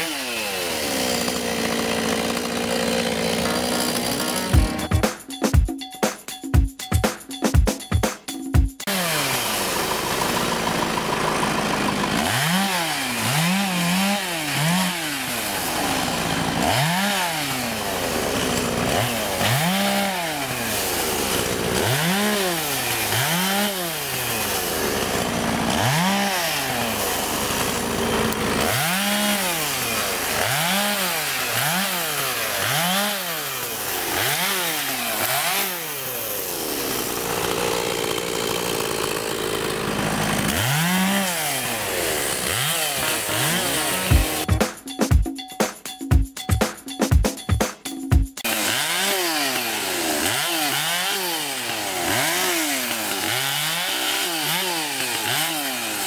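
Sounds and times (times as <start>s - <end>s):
chainsaw engine revving: 0.0s - 5.1s, 8.8s - 44.6s, 48.4s - 56.0s.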